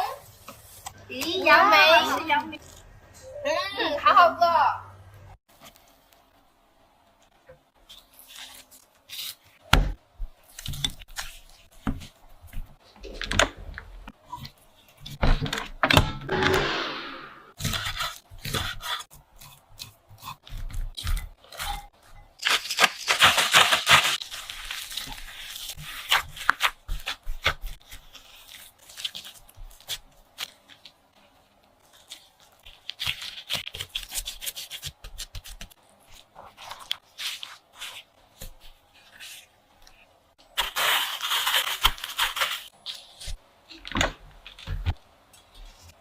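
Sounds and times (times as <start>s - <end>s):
rustling or tearing: 7.8s - 9.6s, 10.4s - 12.9s, 17.6s - 43.4s.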